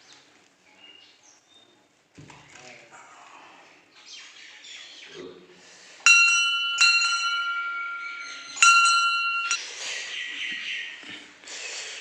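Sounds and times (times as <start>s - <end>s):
metal temple bell ringing: 6.1s - 9.6s.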